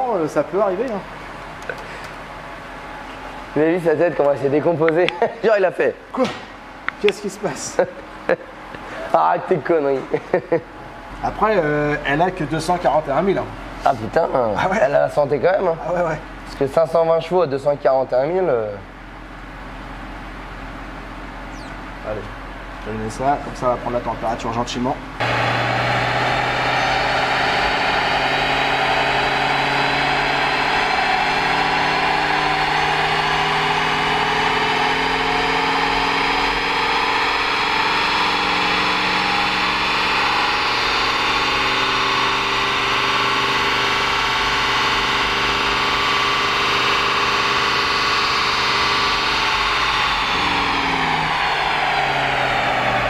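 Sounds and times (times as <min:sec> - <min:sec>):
car engine running steadily: 0:19.0 - 0:53.0.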